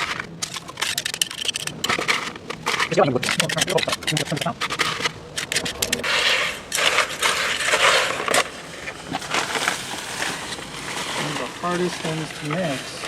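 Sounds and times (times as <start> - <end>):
quick clicks: 0.0 - 8.5
concrete scraping and crunching: 0.0 - 13.0.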